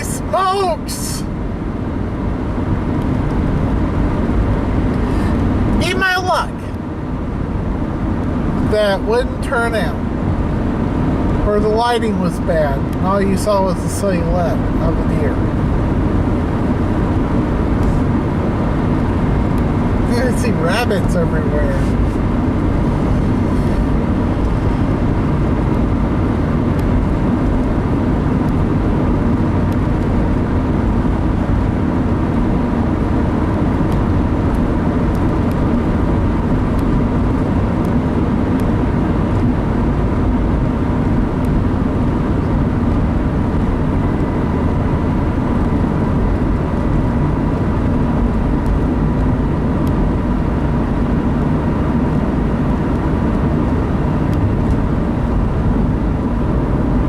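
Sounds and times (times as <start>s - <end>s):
car road noise at highway speed: 0.0s - 57.0s.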